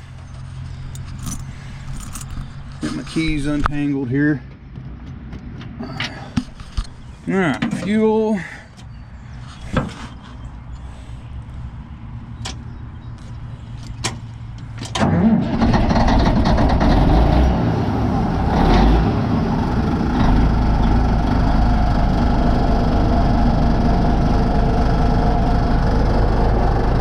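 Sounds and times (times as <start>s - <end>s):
bulldozer diesel engine starting: 14.8s - 27.0s.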